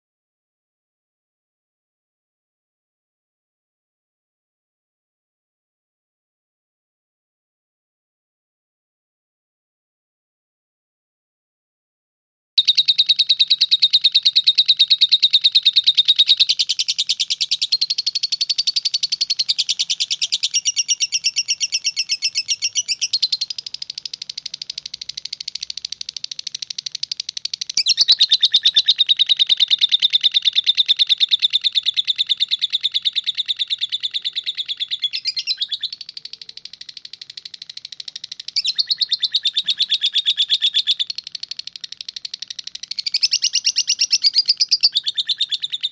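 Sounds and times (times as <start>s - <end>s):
lovebird chattering trill: 12.6s - 45.9s.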